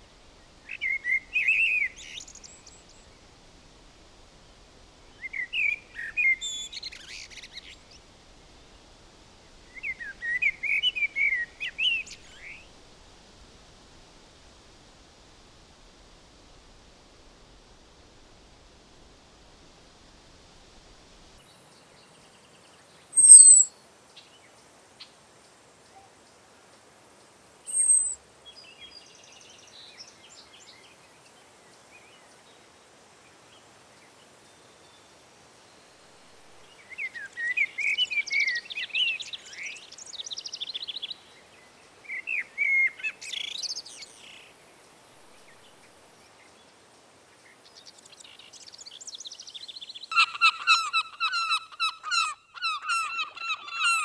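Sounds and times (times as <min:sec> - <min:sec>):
rapid repeated bird calls: 0:21.5 - 0:26.9, 0:27.7 - 0:32.7, 0:36.7 - 0:46.8, 0:47.4 - 0:54.0
bird warbling song: 0:21.8 - 0:24.4, 0:27.7 - 0:31.0, 0:36.7 - 0:41.5, 0:47.4 - 0:54.0
high falling bird calls: 0:22.0 - 0:24.4, 0:27.6 - 0:32.4, 0:47.5 - 0:54.0.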